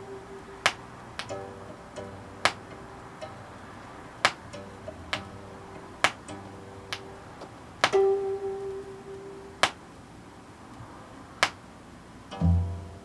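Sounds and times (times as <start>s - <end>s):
plucked zither notes: 0.0s - 10.0s, 12.3s - 13.0s
sharp tap: 0.6s - 1.4s, 2.4s - 2.8s, 4.2s - 5.4s, 6.0s - 7.1s, 7.8s - 8.0s.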